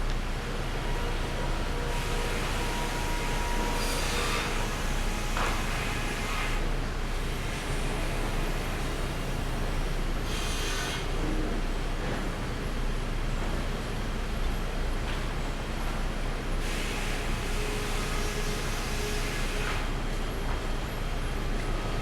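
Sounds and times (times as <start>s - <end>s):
sawmill machinery running: 0.0s - 22.0s.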